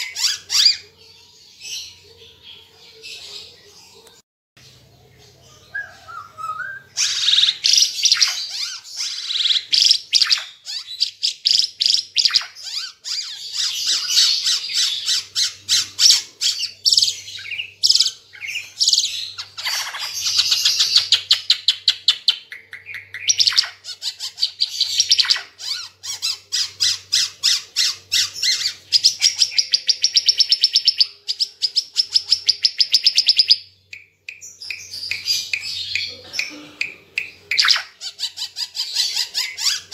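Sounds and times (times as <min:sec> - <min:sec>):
songbird singing with trills: 0:04.8 - 0:36.6.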